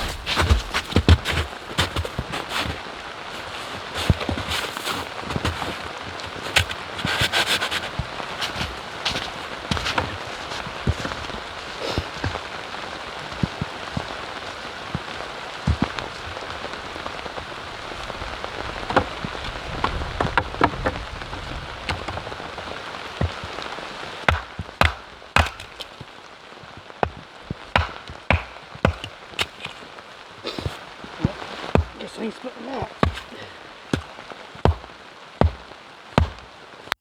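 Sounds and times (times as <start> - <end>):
raindrops tapping on a surface: 0.0 - 37.0
steady rain: 0.0 - 37.0.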